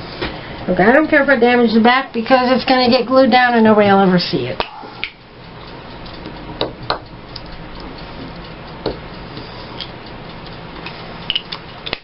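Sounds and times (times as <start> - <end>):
low steady hum: 0.0 - 12.0
timer ticking: 0.6 - 12.0.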